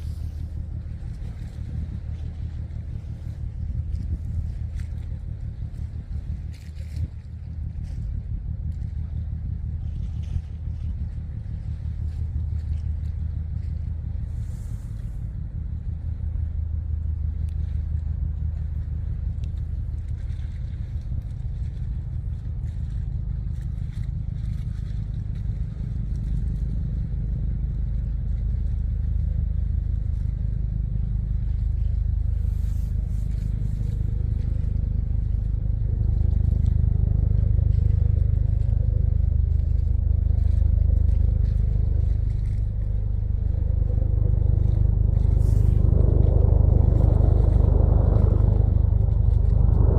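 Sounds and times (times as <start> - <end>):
boat engine droning: 0.0 - 49.9.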